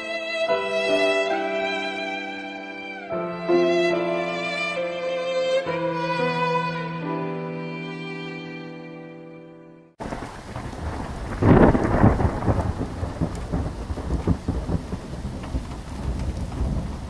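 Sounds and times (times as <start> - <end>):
sad violin music: 0.0 - 10.0
rumbling thunderclap: 10.0 - 17.0
steady rain: 10.0 - 17.0.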